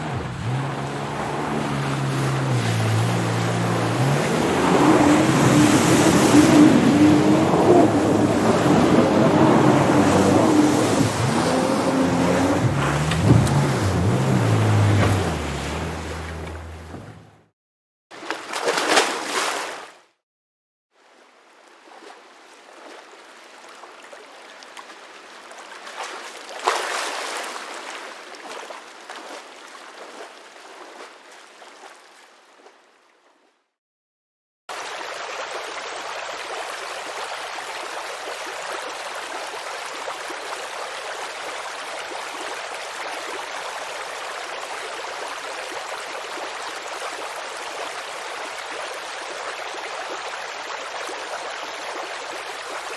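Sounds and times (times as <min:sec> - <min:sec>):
rushing water surge: 0:00.0 - 0:17.3, 0:18.4 - 0:20.0, 0:25.9 - 0:31.2
babbling creek: 0:00.0 - 0:17.5, 0:21.0 - 0:33.7, 0:34.7 - 0:52.9.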